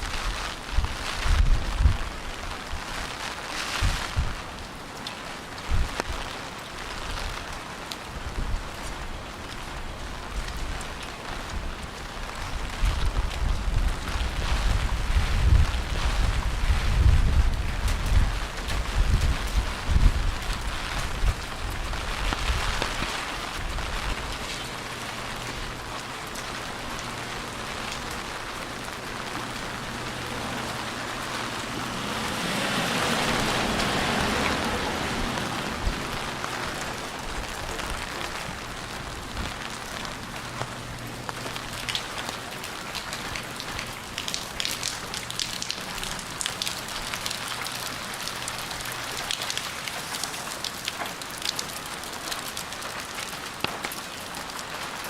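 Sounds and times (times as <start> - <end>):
rain on street: 0.0 - 55.0
raindrop ticks: 0.1 - 55.0
rushing swell: 28.2 - 37.2.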